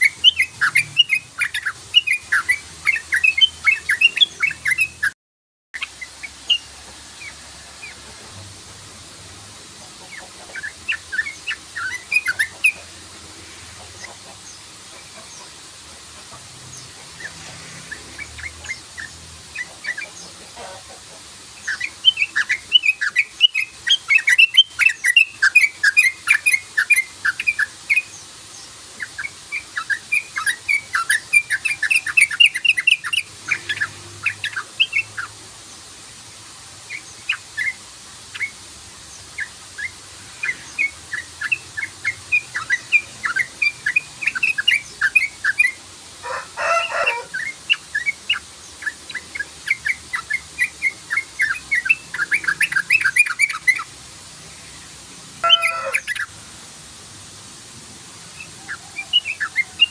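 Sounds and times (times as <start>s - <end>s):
bulbul singing: 0.0s - 5.2s, 10.0s - 12.9s, 21.6s - 35.4s, 36.9s - 54.0s, 55.4s - 56.4s.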